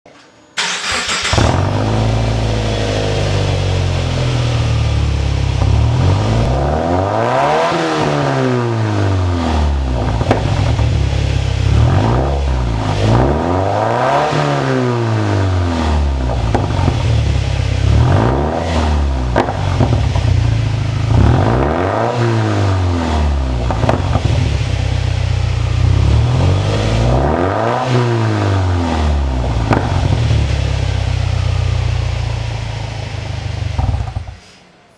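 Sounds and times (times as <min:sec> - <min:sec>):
car engine idling and revving: 0:00.6 - 0:34.6.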